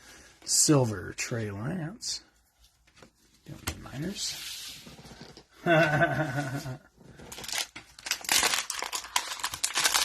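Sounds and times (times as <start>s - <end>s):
plastic wrapper tearing: 7.2s - 10.0s.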